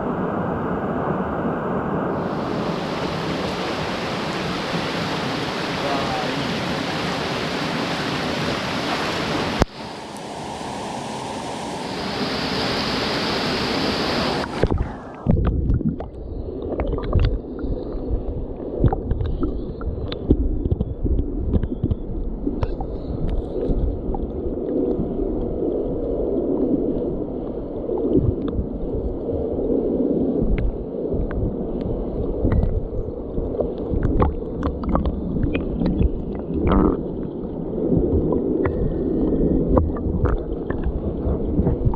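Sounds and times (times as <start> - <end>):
rushing stream water: 0.0 - 21.9, 30.4 - 41.9
muffled underwater gurgling: 14.0 - 41.9.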